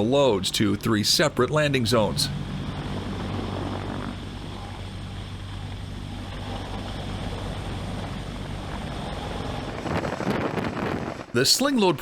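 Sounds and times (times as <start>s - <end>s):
helicopter low hum: 0.0s - 11.0s
helicopter rotor beat: 0.2s - 10.2s
wind noise: 6.3s - 11.4s.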